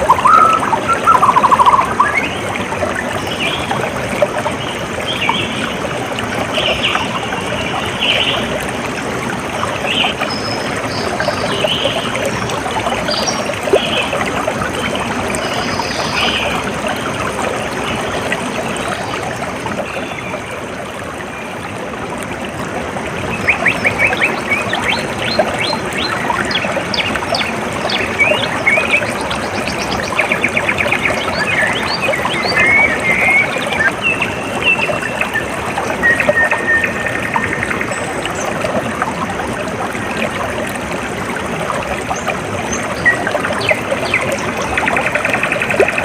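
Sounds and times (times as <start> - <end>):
rapid bird trill: 0.0 - 2.3
high bird calls: 0.0 - 2.5
water trickling: 0.0 - 46.0.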